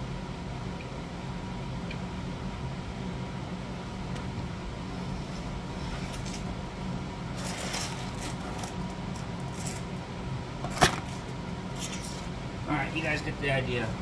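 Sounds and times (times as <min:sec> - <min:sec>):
low mechanical hum: 0:00.0 - 0:14.0
scraping and clicking handling: 0:07.4 - 0:09.9.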